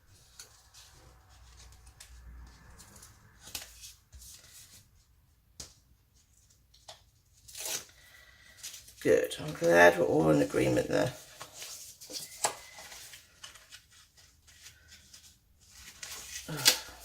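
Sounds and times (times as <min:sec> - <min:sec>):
paper card rustling: 0:05.6 - 0:17.0.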